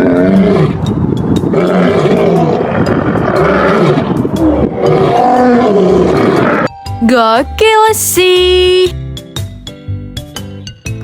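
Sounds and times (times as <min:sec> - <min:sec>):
lion roaring: 0:00.0 - 0:06.7.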